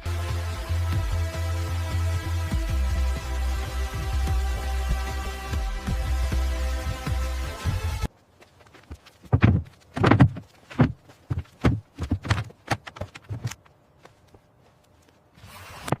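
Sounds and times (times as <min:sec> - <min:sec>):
electronic music: 0:00.0 - 0:08.1
knocks and thuds: 0:08.8 - 0:13.6.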